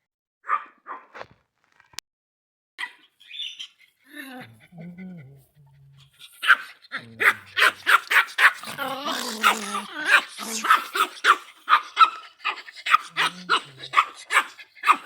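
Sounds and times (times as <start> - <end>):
dog barking rapidly: 0.4 - 1.1, 6.4 - 15.0
wavering cry: 3.2 - 15.0.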